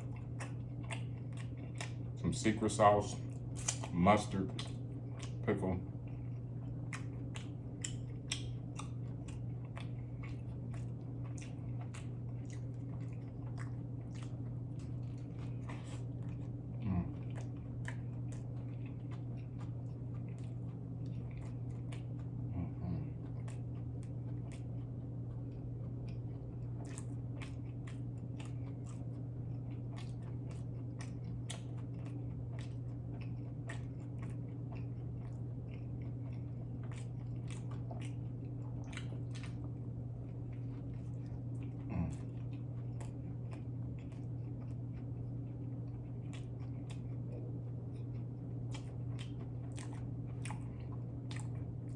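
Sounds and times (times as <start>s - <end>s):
crunchy chewing: 0.0s - 51.9s.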